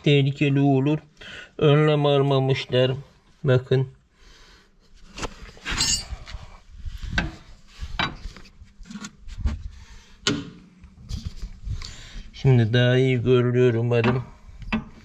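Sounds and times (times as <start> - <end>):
metallic clunks and clinks: 5.7 - 6.2.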